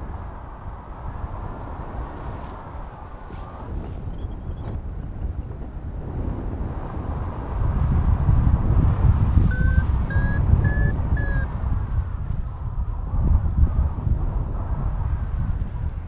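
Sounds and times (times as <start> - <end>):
wind rushing over microphone: 0.0 - 16.0
short electronic beeps: 9.5 - 11.6.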